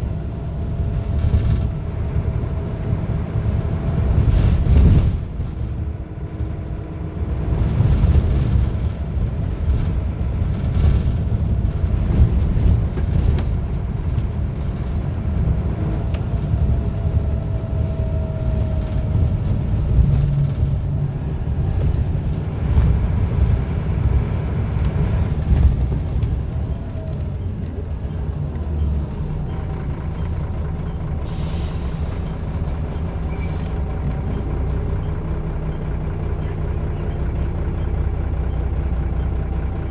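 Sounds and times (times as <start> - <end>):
bus diesel engine running: 0.0 - 39.9
air brakes hissing: 31.2 - 32.7, 33.3 - 33.8.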